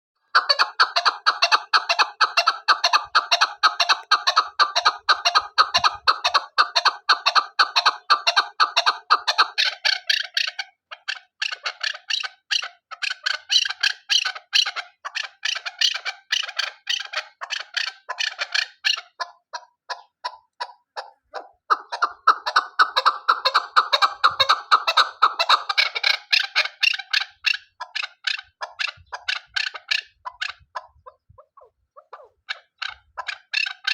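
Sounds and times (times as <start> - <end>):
partridge clucking call: 0.2 - 33.9.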